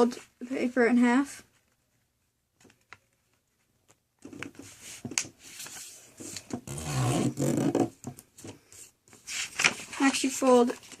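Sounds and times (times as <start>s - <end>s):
paper rustling and crinkling: 1.5s - 6.6s, 8.3s - 11.0s.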